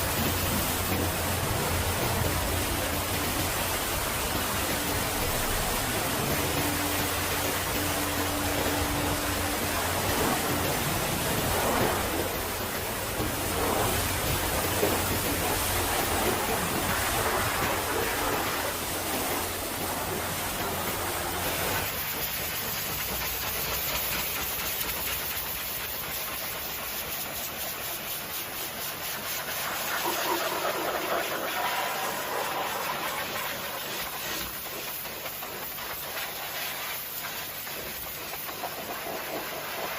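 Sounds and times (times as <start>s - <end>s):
low rumble: 0.0s - 21.8s
high-pressure water spray hissing: 0.0s - 39.9s.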